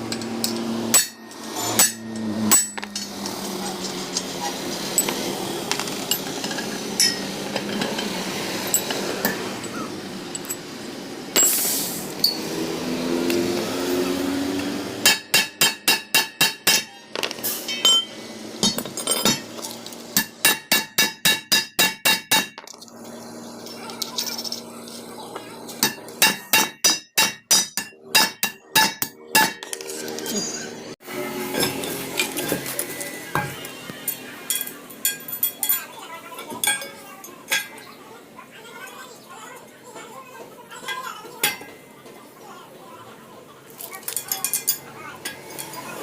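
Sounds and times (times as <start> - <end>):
hammer striking steel: 0.1 - 3.2, 6.1 - 10.6, 15.0 - 19.5, 20.2 - 22.6, 25.8 - 29.9
metal clinks: 8.7 - 10.7.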